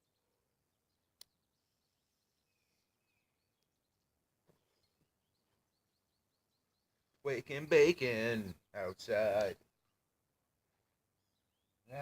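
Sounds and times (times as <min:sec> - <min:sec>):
small birds chirping: 0:00.0 - 0:12.0
faint click: 0:01.2 - 0:01.4.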